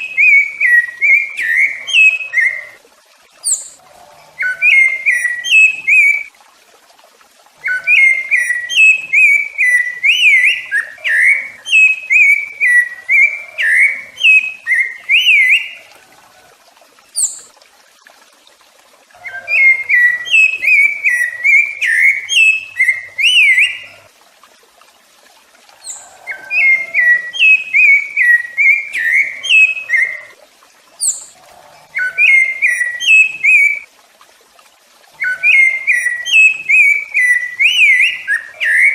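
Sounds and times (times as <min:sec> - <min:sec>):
thrush singing whistled phrases: 0:00.0 - 0:02.8, 0:03.4 - 0:03.8, 0:04.4 - 0:06.3, 0:07.6 - 0:15.9, 0:19.2 - 0:24.0, 0:25.8 - 0:30.3, 0:31.9 - 0:33.9, 0:35.2 - 0:38.9.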